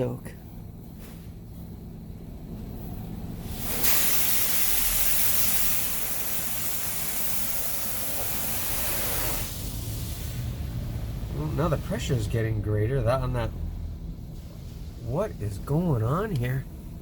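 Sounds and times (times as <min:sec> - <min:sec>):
car wash water spray hiss: 0:03.2 - 0:12.3, 0:14.3 - 0:17.0
low rumble: 0:09.6 - 0:17.0.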